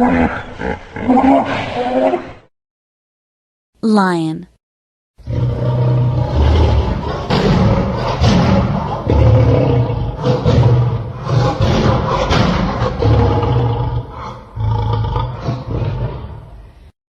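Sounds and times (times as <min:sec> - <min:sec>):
lion roaring: 0:00.0 - 0:02.3, 0:05.2 - 0:16.6.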